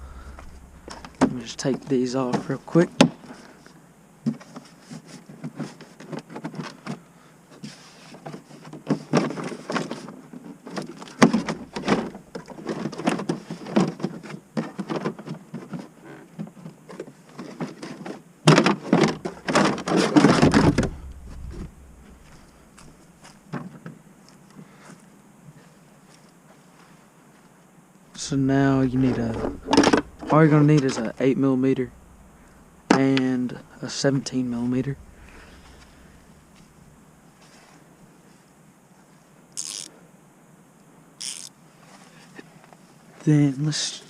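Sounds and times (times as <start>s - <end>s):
rattling and rubbing: 0.0s - 1.9s, 11.3s - 12.9s, 18.9s - 23.3s, 28.2s - 37.2s
parts knocking and rattling: 0.0s - 3.4s, 11.2s - 13.2s, 18.5s - 23.0s, 28.2s - 37.0s.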